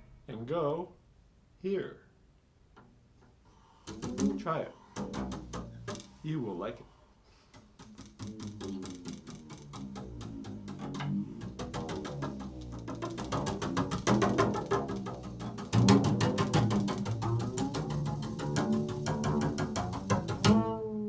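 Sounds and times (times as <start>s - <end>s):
improvised instrumental music: 3.8s - 6.6s, 7.4s - 21.0s.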